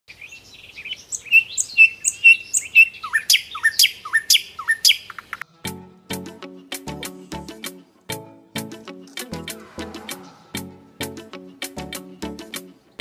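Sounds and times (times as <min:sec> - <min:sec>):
songbird chirping: 0:00.1 - 0:05.5
background music with a beat: 0:05.7 - 0:12.9.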